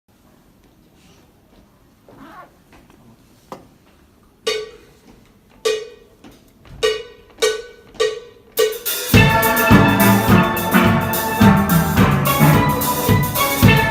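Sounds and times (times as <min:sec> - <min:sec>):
steel band playing: 0:08.0 - 0:13.9
steelpan note strikes: 0:08.0 - 0:13.9.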